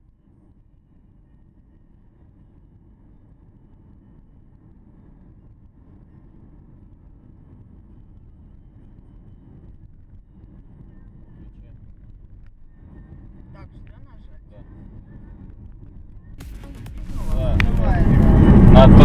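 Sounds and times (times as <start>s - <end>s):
car engine rumble: 1.7s - 19.0s
road noise: 5.7s - 19.0s.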